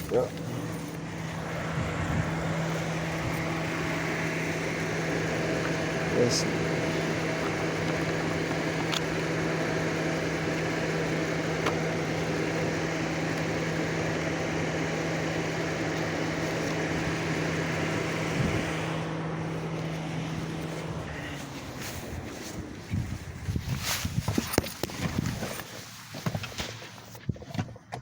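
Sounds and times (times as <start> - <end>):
car mechanical whirring hum: 0.0 - 28.0.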